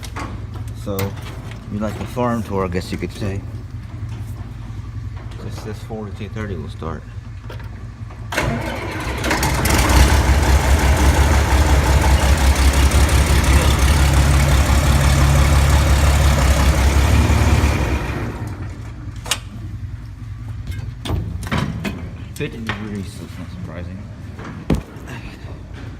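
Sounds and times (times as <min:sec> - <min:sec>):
tractor diesel engine starting: 0:04.5 - 0:20.5.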